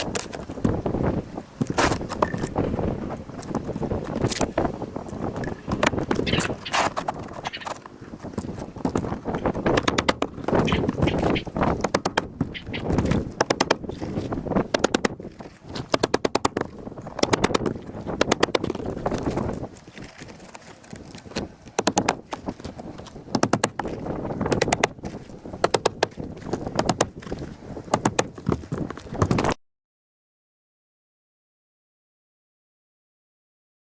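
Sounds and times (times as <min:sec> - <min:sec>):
hammer driving nails into roof: 0:09.6 - 0:13.9, 0:14.6 - 0:18.8, 0:21.7 - 0:25.0, 0:25.6 - 0:27.1, 0:27.9 - 0:28.6.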